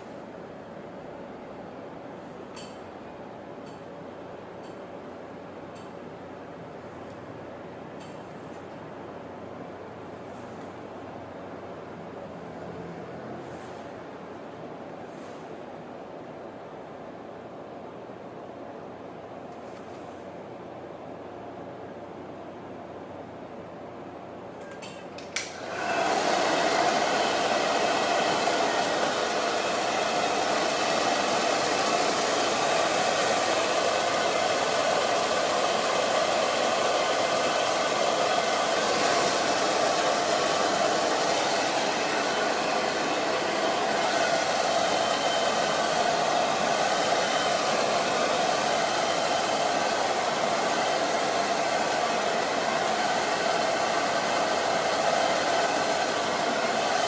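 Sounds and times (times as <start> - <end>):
hair dryer running: 25.3 - 57.0.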